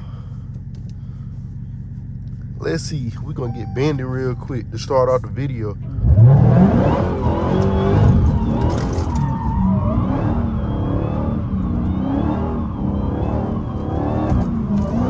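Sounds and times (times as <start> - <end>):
supercharger whine: 0.0 - 15.0
car engine revving: 3.4 - 15.0.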